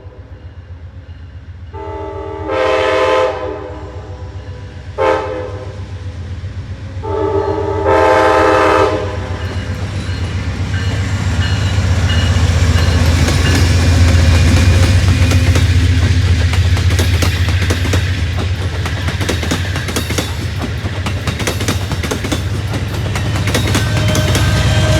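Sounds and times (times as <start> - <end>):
diesel locomotive engine rumble: 0.0 - 24.9
train horn blast: 1.7 - 6.0, 7.0 - 9.4, 23.2 - 24.9
train wheel noise: 8.1 - 24.9
wheels clicking over rail joints: 9.4 - 24.9.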